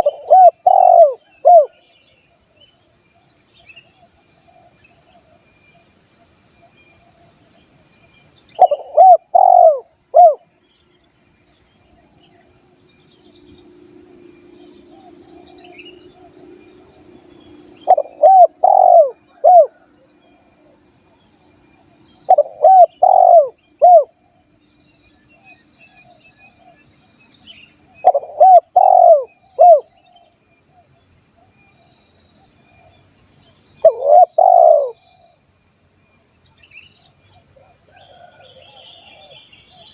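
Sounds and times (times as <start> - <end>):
dove cooing: 0.0 - 1.8, 8.6 - 10.4, 17.8 - 19.9, 22.3 - 24.2, 28.0 - 30.0, 33.8 - 35.3
high drone of insects: 0.0 - 39.9.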